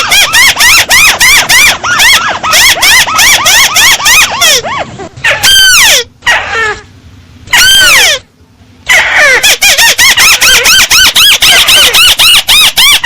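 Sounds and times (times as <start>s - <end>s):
crake calling: 0.0s - 6.9s.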